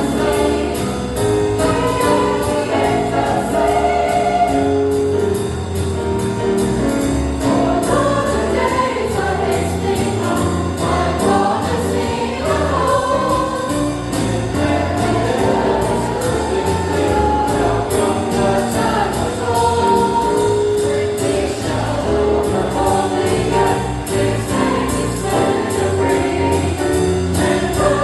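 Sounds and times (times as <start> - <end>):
choir singing jazz: 0.0 - 28.0.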